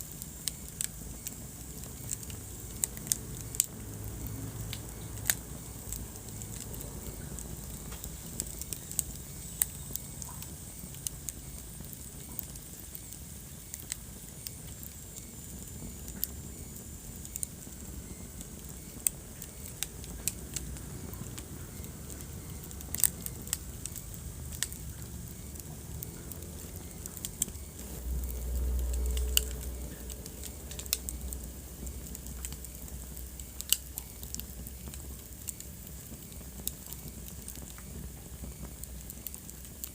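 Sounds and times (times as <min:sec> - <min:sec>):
fire crackles and pops: 0:00.0 - 0:39.9
fire hissing: 0:00.0 - 0:39.9
low rumble: 0:17.7 - 0:35.0.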